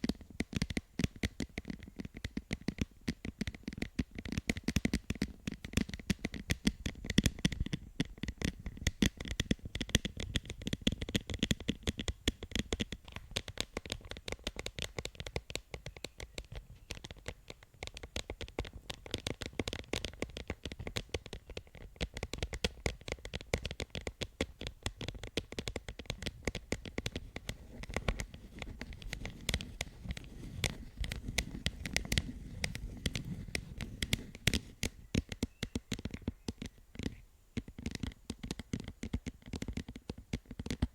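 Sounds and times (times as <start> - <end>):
fingers tapping and scratching objects: 0.0 - 40.9.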